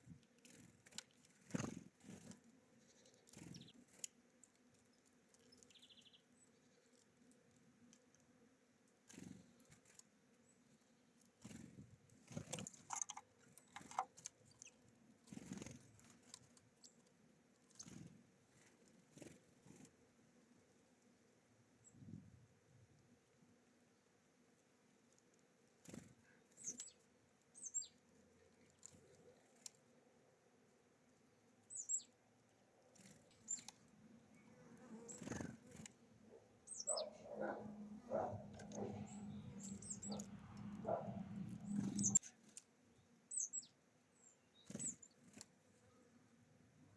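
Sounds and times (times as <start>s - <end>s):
songbirds chirping: 0.0s - 22.2s, 22.8s - 46.9s
birds pecking taps and rustles: 0.1s - 10.2s, 11.1s - 19.9s, 28.1s - 29.8s, 38.2s - 42.7s
bird chirp: 2.8s - 3.8s, 5.4s - 7.0s, 25.9s - 28.0s, 31.6s - 32.2s, 33.0s - 42.4s, 43.0s - 45.4s.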